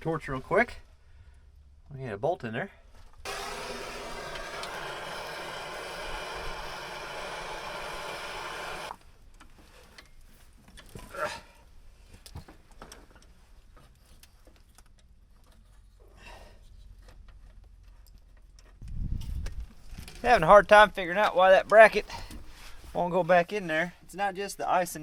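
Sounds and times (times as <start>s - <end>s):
torch roaring hiss: 3.3s - 8.9s.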